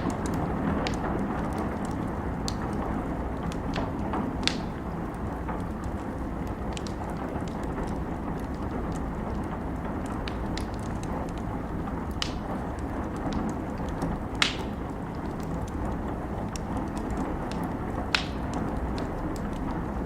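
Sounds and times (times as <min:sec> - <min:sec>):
fire crackling: 0:00.0 - 0:20.0
loud fire pops: 0:00.0 - 0:20.0
steady rain: 0:00.0 - 0:20.0.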